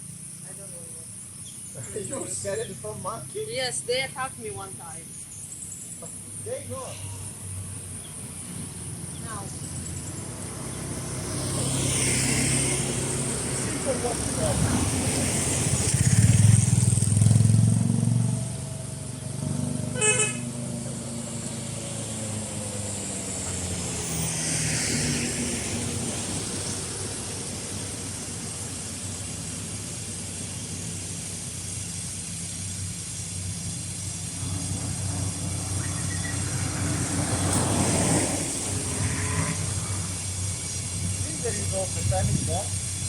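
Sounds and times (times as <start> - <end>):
road traffic passing: 0.0 - 43.0
car horn toot: 19.9 - 20.6.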